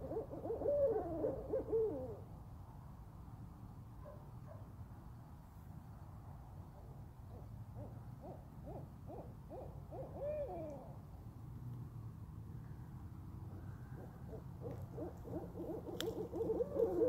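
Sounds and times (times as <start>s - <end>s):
owls hooting: 0.0s - 2.3s, 7.8s - 11.0s, 13.6s - 17.0s.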